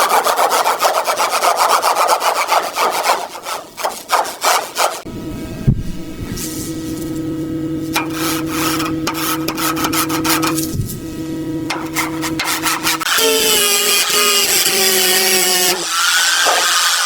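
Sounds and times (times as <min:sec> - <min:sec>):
power tool rasping: 0:00.0 - 0:05.1, 0:07.9 - 0:10.8, 0:11.7 - 0:17.0
higher-pitched power tool: 0:11.6 - 0:17.0.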